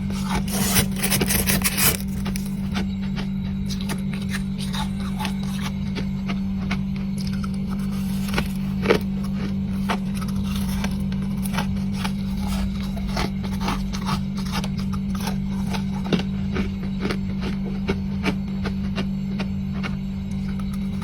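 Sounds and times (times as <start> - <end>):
frost being chewed: 0.0 - 21.0
steady low hum: 0.0 - 21.0.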